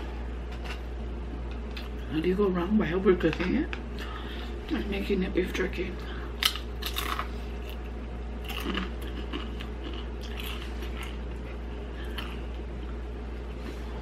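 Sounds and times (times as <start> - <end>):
tortilla chip crunching: 6.4 - 12.7.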